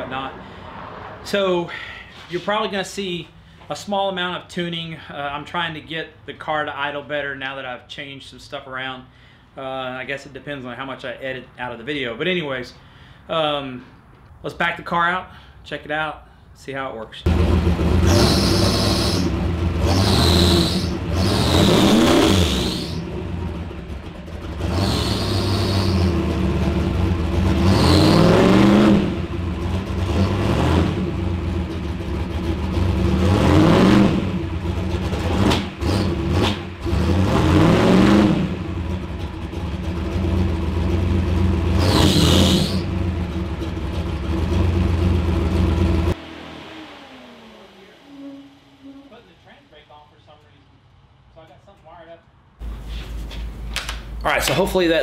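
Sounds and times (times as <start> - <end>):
turbocharged engine revving: 17.3 - 49.7.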